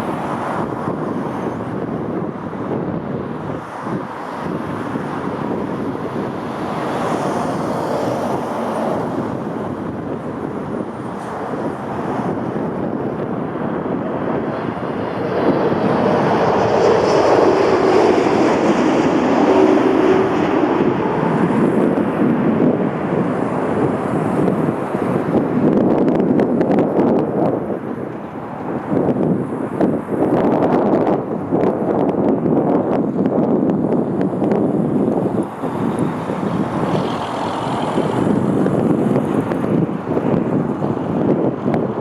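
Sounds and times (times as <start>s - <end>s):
jet engines rushing: 0.0s - 42.0s
wind buffeting microphone: 0.0s - 42.0s.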